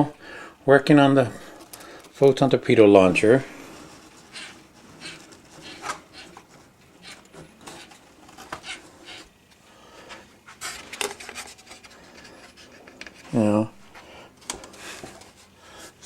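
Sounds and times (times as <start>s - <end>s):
hands rubbing plastic model: 3.6s - 9.3s.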